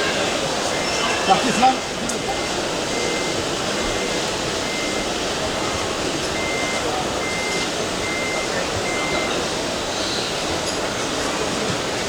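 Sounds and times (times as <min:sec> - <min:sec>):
background hubbub: 0:00.0 - 0:12.0
reversing alarm beeping: 0:00.7 - 0:09.7.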